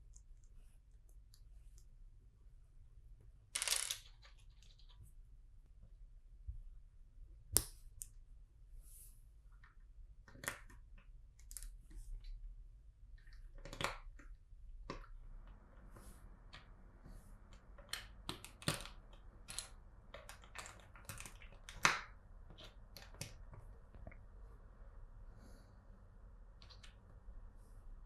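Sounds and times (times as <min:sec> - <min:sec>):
plastic bricks clicking: 0:03.6 - 0:05.0.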